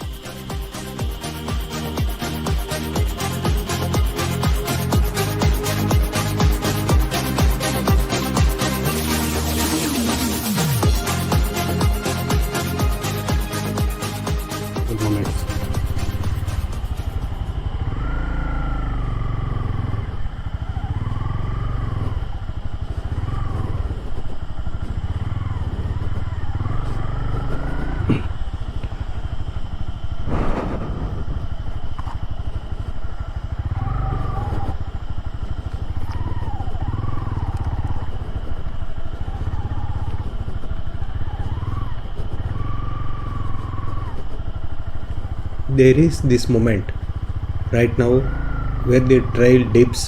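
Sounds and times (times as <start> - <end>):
motorcycle engine running: 0.0 - 50.0
brief burst of noise: 30.3 - 32.2.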